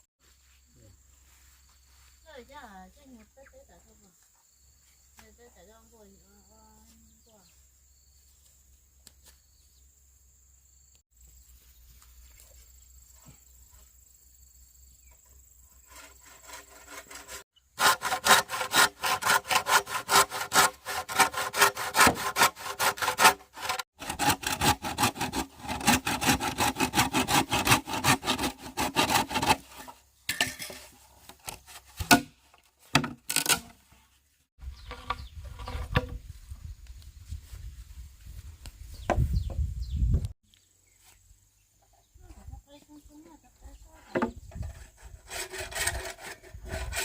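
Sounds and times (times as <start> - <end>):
hand saw cutting bamboo: 15.8 - 30.0, 30.7 - 33.9, 44.1 - 47.0.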